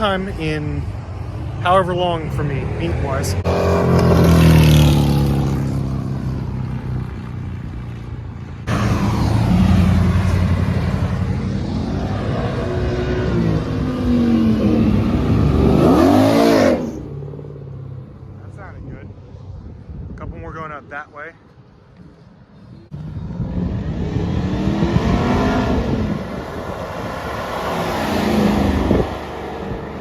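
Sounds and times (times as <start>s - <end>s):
car engines accelerating: 0.0s - 18.7s, 22.9s - 30.0s.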